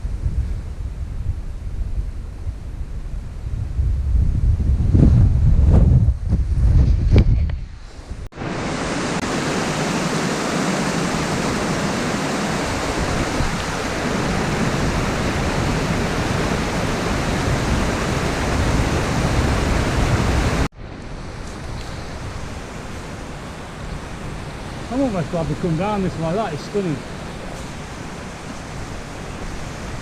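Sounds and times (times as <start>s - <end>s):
rushing water of stream: 8.2s - 30.0s.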